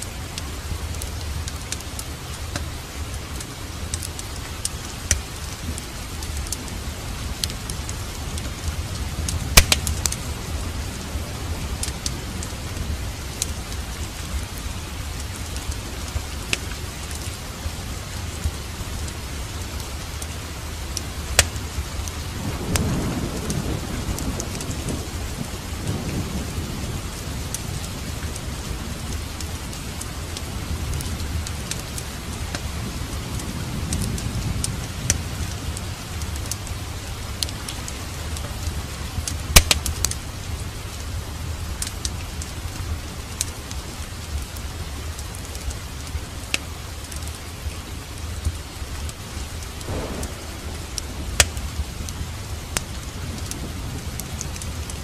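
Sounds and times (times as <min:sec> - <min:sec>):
log fire crackling and popping: 0:00.0 - 0:25.6, 0:27.0 - 0:55.0
steady rain: 0:00.0 - 0:55.0
thunder rumbling: 0:17.2 - 0:39.6, 0:49.8 - 0:55.0.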